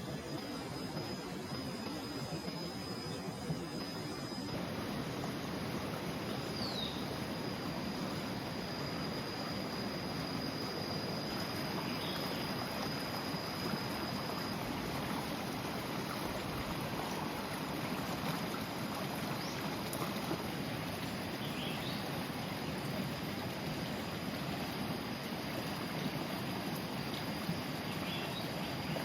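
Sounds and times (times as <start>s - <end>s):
high insect trill: 0.0s - 23.0s
running water or wind: 0.0s - 29.0s.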